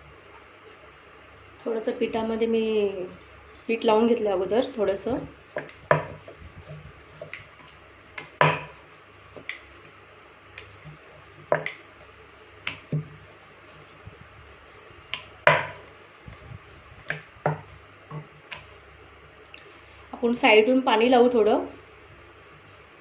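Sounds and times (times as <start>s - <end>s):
rolling pin knocking on board: 5.5s - 7.5s, 8.2s - 8.8s, 10.7s - 11.8s, 12.7s - 13.2s, 15.2s - 15.8s, 17.0s - 18.3s.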